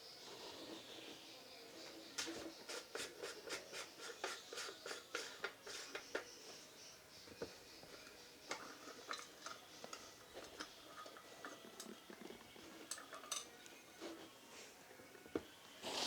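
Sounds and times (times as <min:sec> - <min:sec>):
small parts clicking and tapping: 0:07.3 - 0:13.8.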